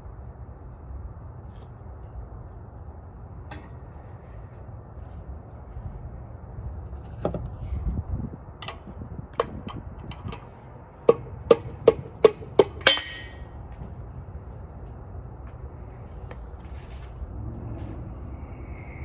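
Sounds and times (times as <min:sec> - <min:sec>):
hammer striking metal: 0:11.1 - 0:13.5.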